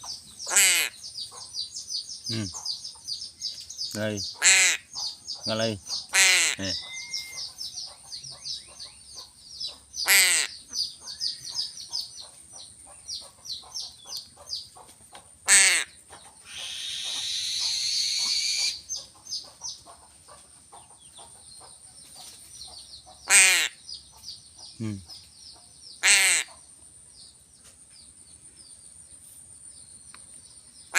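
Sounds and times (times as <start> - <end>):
birds chirping rapidly: 0.0 - 30.9
crows cawing: 0.5 - 1.0, 4.4 - 4.9, 6.1 - 7.5, 10.0 - 10.6, 15.5 - 18.8, 23.3 - 23.8, 26.0 - 26.6.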